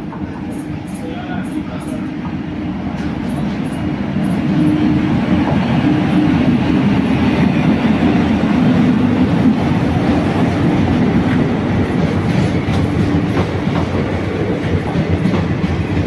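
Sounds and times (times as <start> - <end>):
train wheels rushing on rails: 0.0 - 16.0
clacks over rail joints: 10.1 - 16.0.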